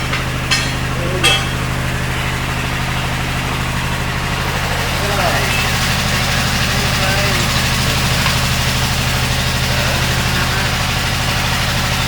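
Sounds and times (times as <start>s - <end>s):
engine running: 0.0s - 12.0s
sharp metallic clinks: 0.1s - 1.8s.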